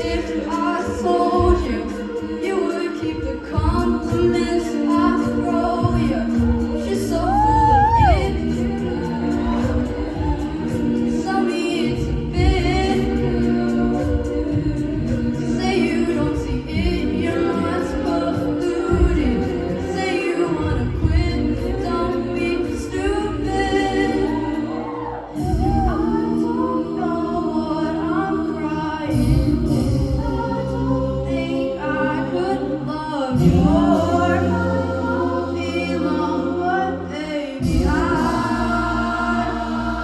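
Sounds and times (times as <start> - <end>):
vocal group singing in harmony: 0.0 - 40.0
sustained low vocal bass: 23.6 - 26.4.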